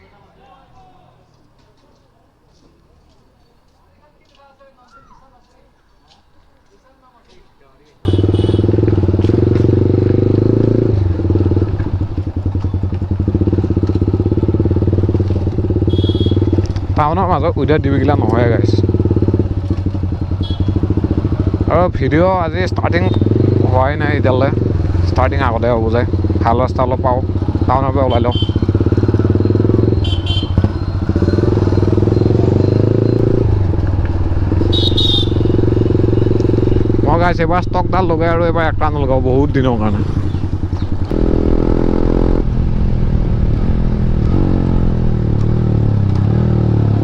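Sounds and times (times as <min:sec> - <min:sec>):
motorcycle engine idling: 0:08.0 - 0:47.0.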